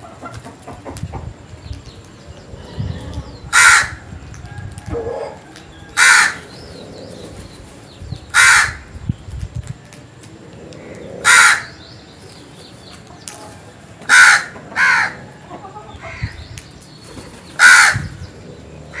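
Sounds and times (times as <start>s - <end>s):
crow cawing: 3.5s - 4.0s, 6.0s - 6.4s, 8.4s - 8.8s, 11.2s - 11.8s, 14.1s - 15.2s, 17.6s - 18.1s.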